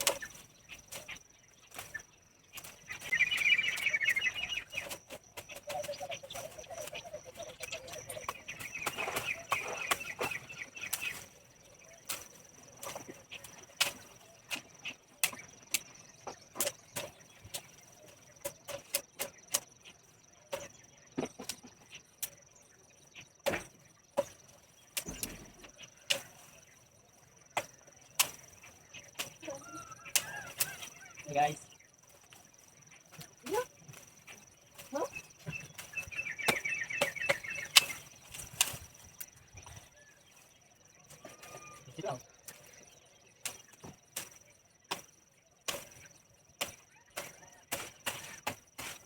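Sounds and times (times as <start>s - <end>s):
branches snipped and snapping: 0.0s - 7.0s, 7.6s - 19.7s, 23.4s - 31.2s, 32.0s - 39.8s, 43.4s - 49.0s
high insect trill: 0.0s - 49.0s.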